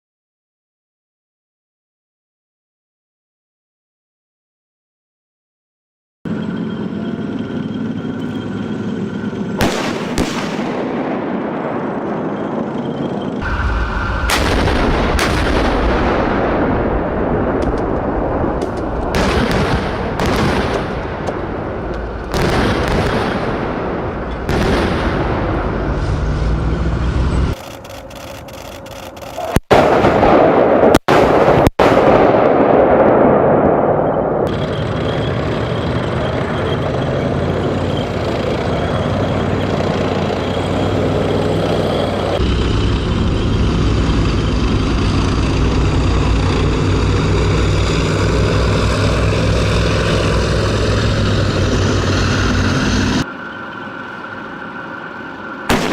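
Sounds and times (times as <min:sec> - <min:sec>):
tank engine rumble: 0:06.3 - 0:30.7, 0:31.9 - 0:55.9
tank gun firing booms: 0:09.6 - 0:13.0, 0:14.2 - 0:25.9, 0:29.7 - 0:34.5, 0:55.7 - 0:55.9.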